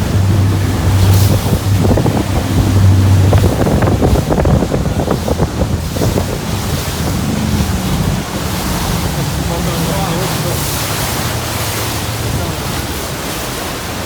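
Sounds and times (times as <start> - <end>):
boat engine humming: 0.0 - 14.0
rushing water: 0.0 - 14.0
wind buffeting microphone: 0.0 - 14.0.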